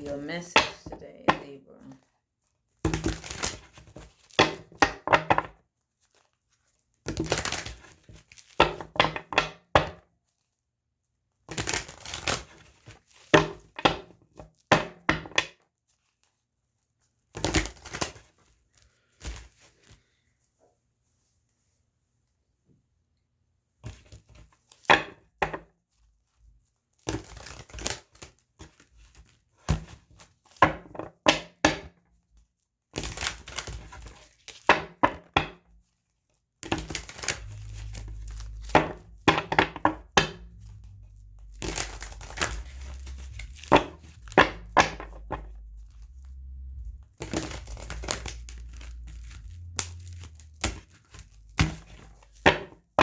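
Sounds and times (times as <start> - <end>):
low hum: 36.8 - 53.0.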